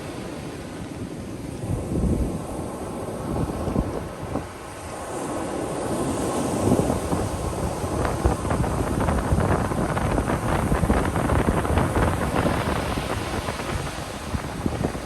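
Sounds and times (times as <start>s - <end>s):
wind rumbling on microphone: 0.0s - 15.0s
ocean surf breaking: 2.5s - 15.0s.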